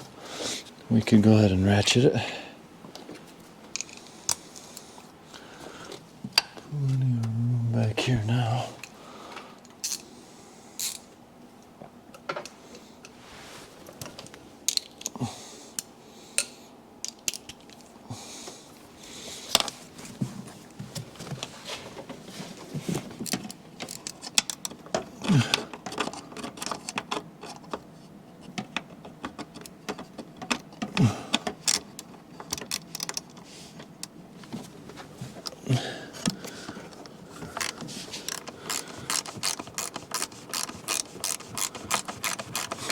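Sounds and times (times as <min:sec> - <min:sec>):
hand ratchet clicking: 0:37.5 - 0:42.9.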